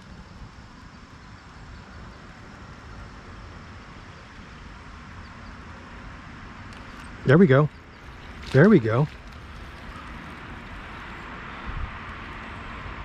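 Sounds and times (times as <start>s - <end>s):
outdoor rushing noise: 0.0s - 13.0s.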